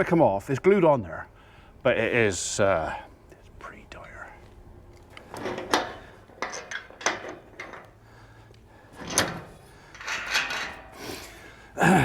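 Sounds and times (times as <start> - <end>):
metal gate clanking and scraping: 5.0 - 11.7.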